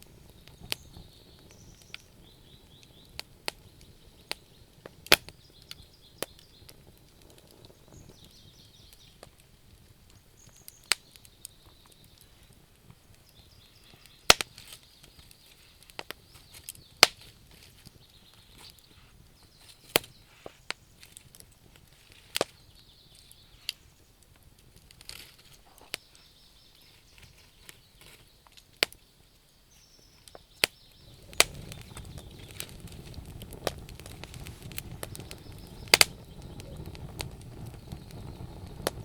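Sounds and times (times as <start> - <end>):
bonfire crackling and popping: 0.0 - 39.0
faint high chirping: 34.9 - 39.0.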